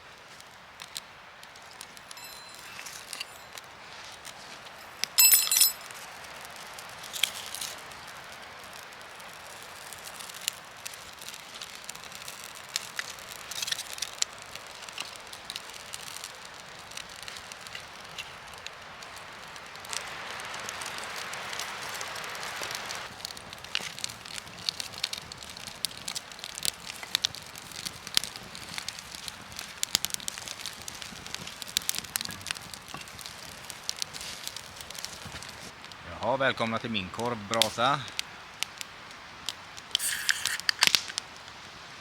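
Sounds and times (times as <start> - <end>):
campfire crackling and popping: 0.0 - 42.0
loud metallic clink: 2.1 - 3.5, 5.2 - 5.9.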